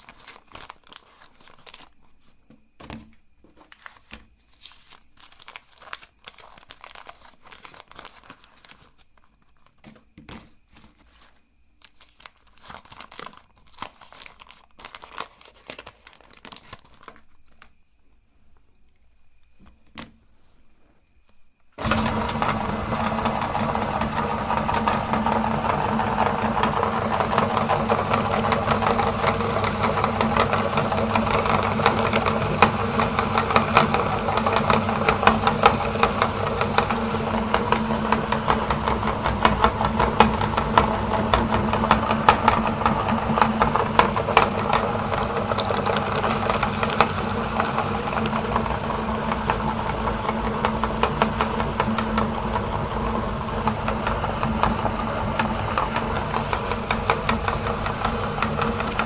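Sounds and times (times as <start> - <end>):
crackles and knocks of grinding: 21.8 - 59.0
meat grinder motor hum: 21.8 - 59.0.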